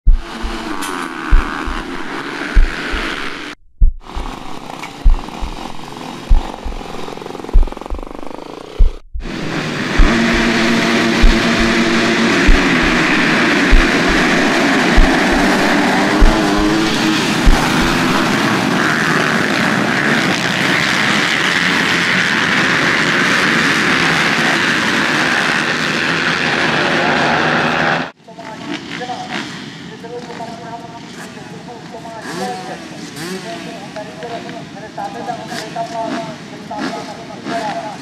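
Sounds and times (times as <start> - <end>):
motocross bikes engine blare: 0.1 - 28.1.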